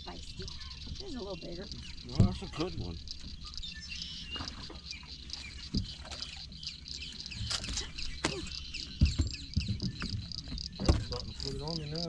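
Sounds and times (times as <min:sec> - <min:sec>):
high-pitched insect chorus: 0:00.0 - 0:12.0
sharp knocks in a boat: 0:02.1 - 0:02.6, 0:05.6 - 0:06.4, 0:07.4 - 0:11.5.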